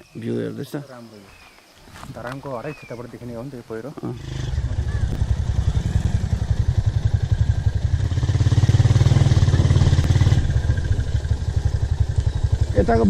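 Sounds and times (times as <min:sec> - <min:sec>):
motorcycle engine running: 0:04.1 - 0:13.0.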